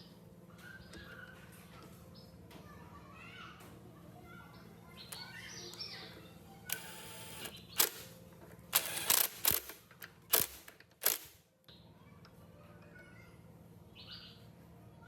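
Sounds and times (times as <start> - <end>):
sharp mechanical clicks and knocks: 6.7 - 11.4.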